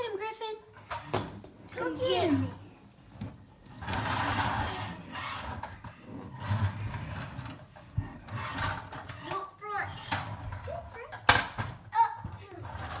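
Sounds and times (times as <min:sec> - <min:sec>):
toy trucks scraping: 0:00.8 - 0:13.0
low growling noises: 0:03.9 - 0:09.2.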